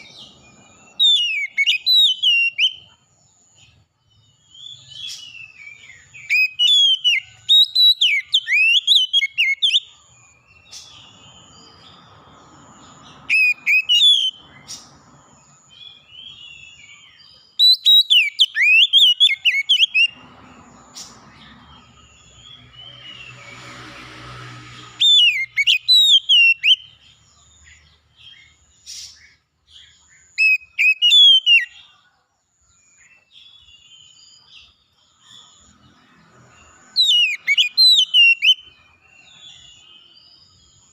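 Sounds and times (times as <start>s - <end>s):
songbird singing whistled phrases: 0.0s - 3.0s, 4.4s - 12.0s, 12.8s - 15.0s, 15.7s - 20.2s, 24.9s - 31.9s, 36.8s - 40.9s.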